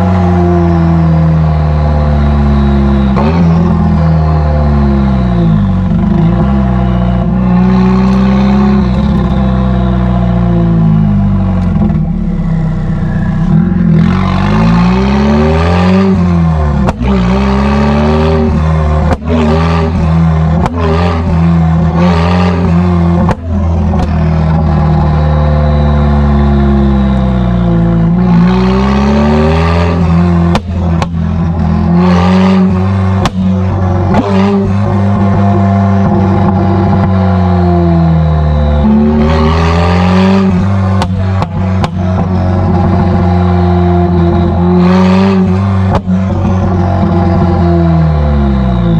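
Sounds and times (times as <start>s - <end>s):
car engine and exhaust revving: 0.0s - 48.9s.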